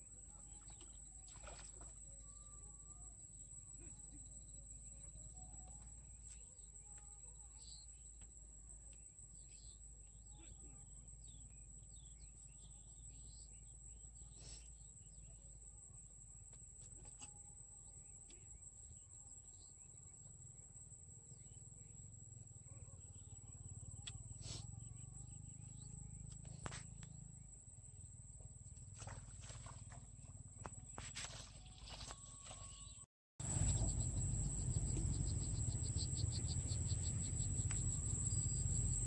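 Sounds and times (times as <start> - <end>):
insects trilling: 29.0 - 39.0.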